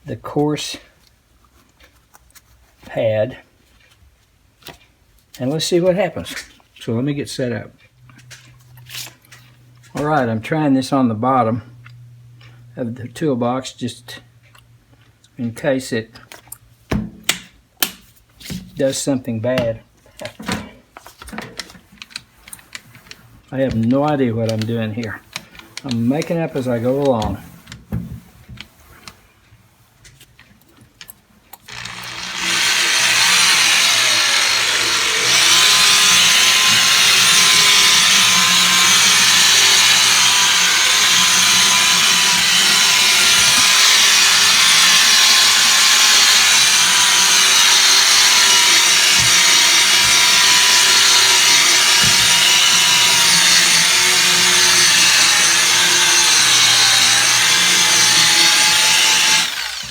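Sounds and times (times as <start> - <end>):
electric drill whirring: 31.7 - 59.9.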